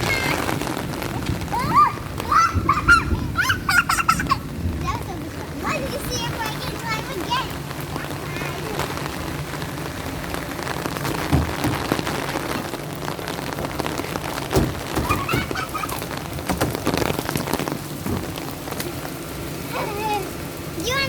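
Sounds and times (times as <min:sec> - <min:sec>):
rain on hard surfaces: 0:00.0 - 0:21.0
loud knocks: 0:11.0 - 0:12.4, 0:14.4 - 0:15.8, 0:16.4 - 0:17.4, 0:18.0 - 0:18.5.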